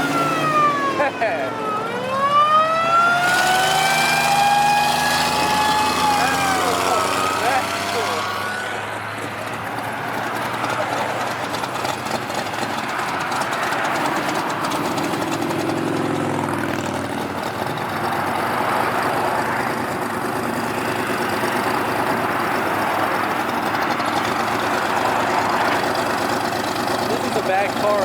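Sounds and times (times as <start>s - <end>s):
pitched engine note: 0.0s - 9.0s
car engines idling: 0.0s - 28.0s.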